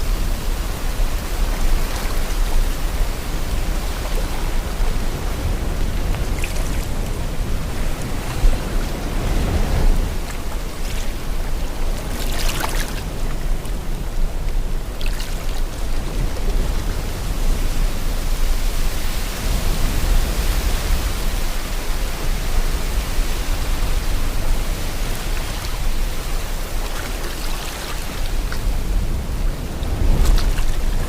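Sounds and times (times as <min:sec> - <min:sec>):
wind: 0:00.0 - 0:31.0
sea water washing: 0:19.4 - 0:31.0.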